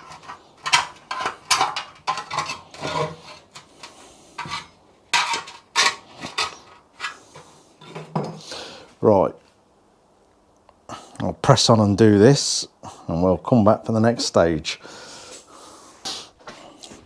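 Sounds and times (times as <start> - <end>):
scraper blade on metal tank: 0.0 - 8.1.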